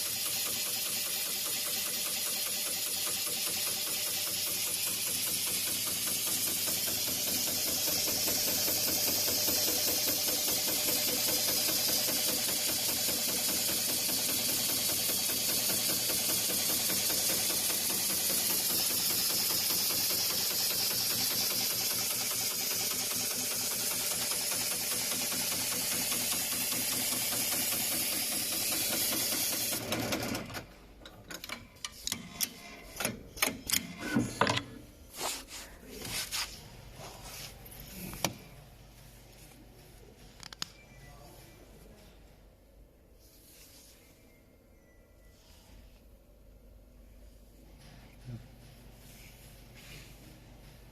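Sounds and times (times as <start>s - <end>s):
sewing machine stitching: 0.0s - 30.7s.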